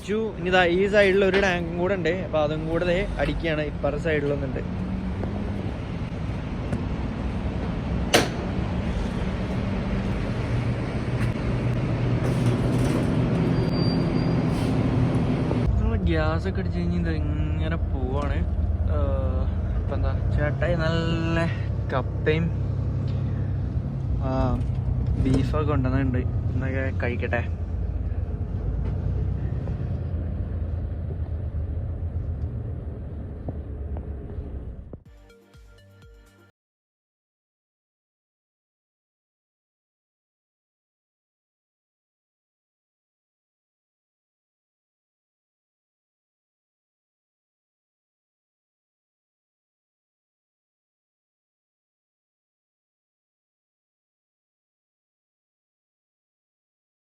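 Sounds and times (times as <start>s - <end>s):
truck engine and road noise: 0.0s - 35.1s.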